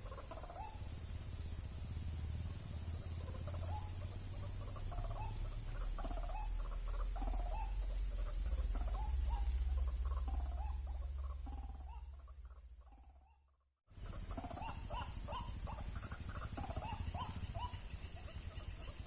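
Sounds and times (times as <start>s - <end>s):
high-pitched hiss: 0.0s - 12.9s, 13.9s - 19.0s
waterhen calling: 0.0s - 19.0s
low rumble: 0.8s - 13.5s.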